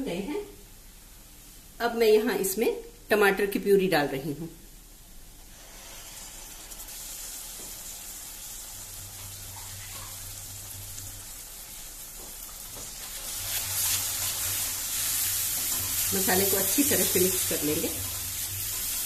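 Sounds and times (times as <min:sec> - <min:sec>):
tomato puree sizzling in oil: 0:05.2 - 0:19.0.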